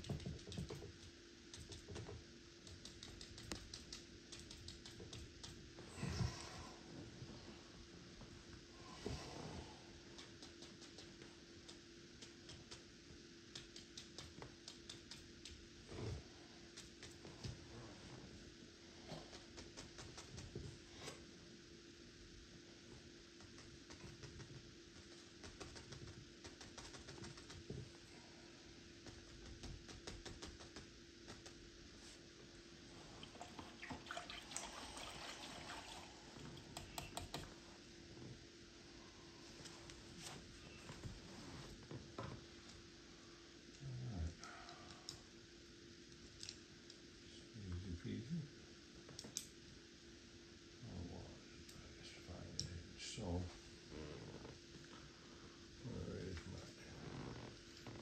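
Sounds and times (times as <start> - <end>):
steady low hum: 0.0 - 58.0
light clicks and taps: 36.7 - 37.6.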